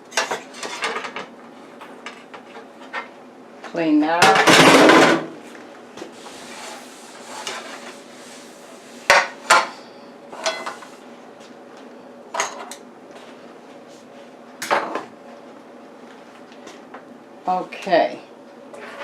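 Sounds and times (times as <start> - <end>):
dishes and utensils clinking: 10.4 - 10.8.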